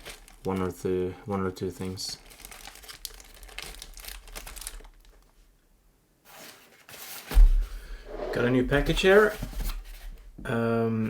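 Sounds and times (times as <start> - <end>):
plastic packaging crinkling: 0.0 - 5.4
heavy thump: 7.3 - 9.2.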